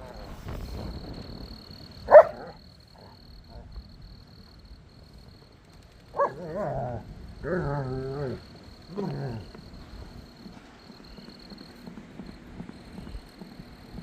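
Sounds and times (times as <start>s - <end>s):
dog barking: 2.1s - 2.6s, 6.1s - 6.8s.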